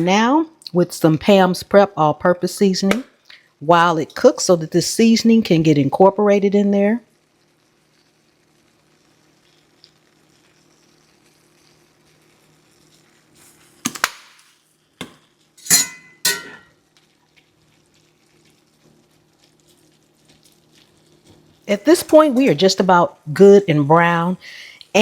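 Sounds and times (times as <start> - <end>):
meat sizzling in a skillet: 7.0 - 25.0
utensil scraping a pan: 15.6 - 16.7.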